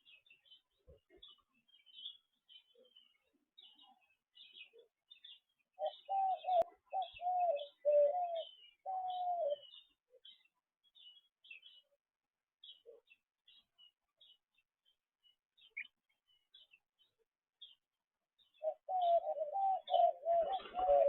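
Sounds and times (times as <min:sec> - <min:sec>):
low falling bird calls: 0:00.0 - 0:11.8, 0:18.4 - 0:21.0.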